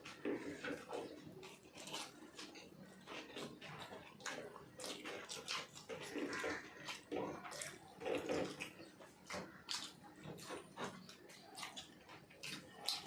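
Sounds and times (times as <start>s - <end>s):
wet chewing mouth noises: 0.0s - 13.0s.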